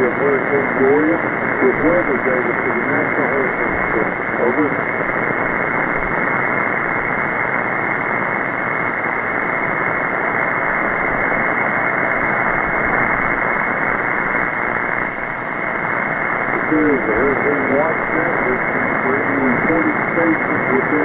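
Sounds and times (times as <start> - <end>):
shortwave radio hiss: 0.0 - 21.0.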